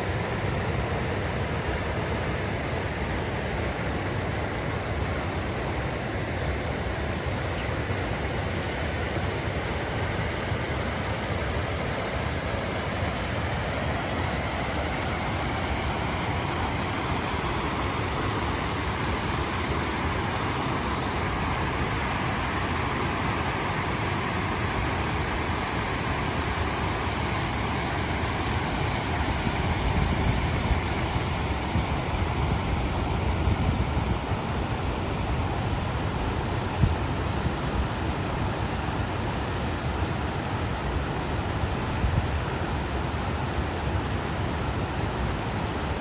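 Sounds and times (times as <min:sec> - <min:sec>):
stream rushing over rocks: 0:09.2 - 0:46.0.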